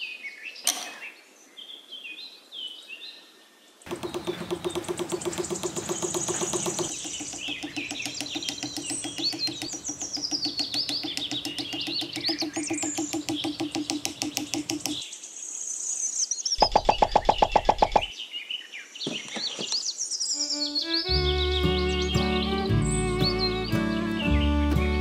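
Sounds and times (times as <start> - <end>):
rapid pulsing sound: 3.9 - 15.0
birds chirping: 3.9 - 15.2, 16.4 - 25.0.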